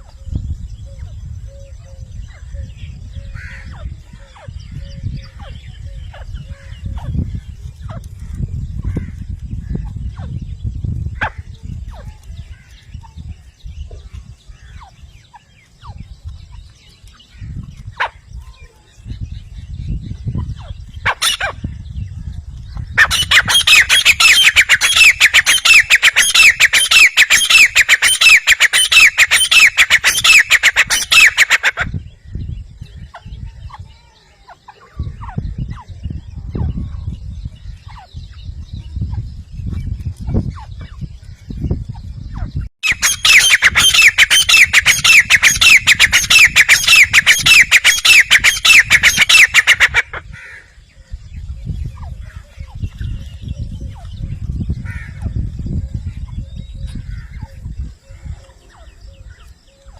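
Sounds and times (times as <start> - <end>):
francolin calling: 22.8 - 36.2, 40.4 - 51.1.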